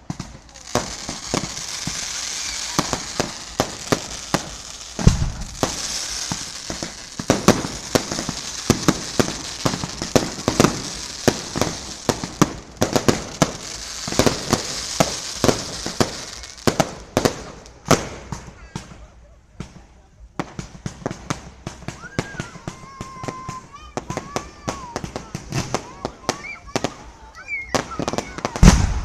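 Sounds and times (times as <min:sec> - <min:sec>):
crackling hiss: 0:00.0 - 0:29.0
fireworks bangs and pops: 0:00.0 - 0:29.0
deep firework boom: 0:02.6 - 0:10.9, 0:28.6 - 0:29.0.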